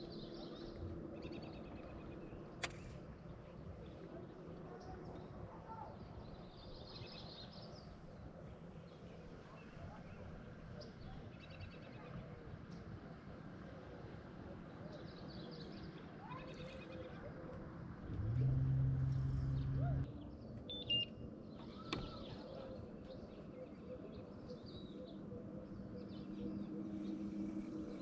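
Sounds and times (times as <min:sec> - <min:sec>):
loud low drone: 0:18.0 - 0:20.1
steady low hum: 0:18.0 - 0:20.1.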